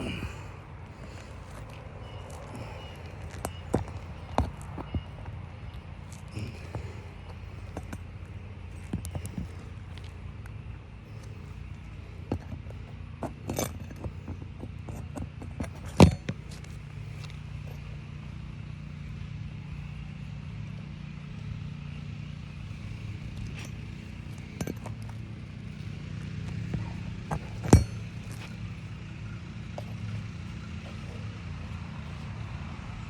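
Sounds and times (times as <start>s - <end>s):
hand tools on roof shingles: 0.0s - 10.2s, 11.1s - 17.8s, 22.7s - 31.3s
steady low hum: 0.0s - 33.0s.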